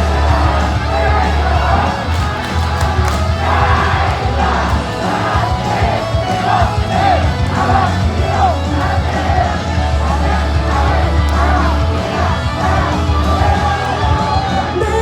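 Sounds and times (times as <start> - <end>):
amplified pop music: 0.0 - 15.0
crowd shouting calls: 0.0 - 15.0.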